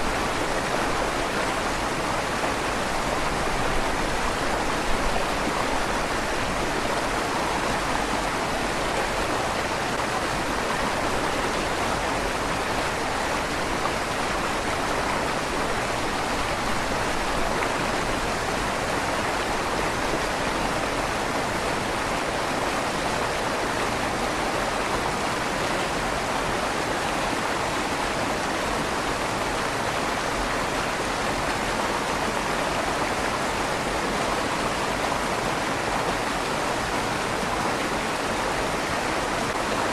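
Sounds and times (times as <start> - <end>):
river water rushing under bridge: 0.0 - 39.9.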